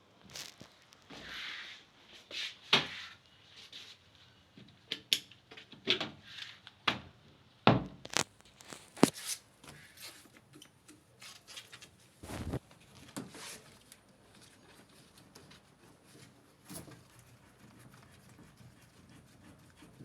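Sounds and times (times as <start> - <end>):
knocks and scrapes of handling: 8.1 - 20.0.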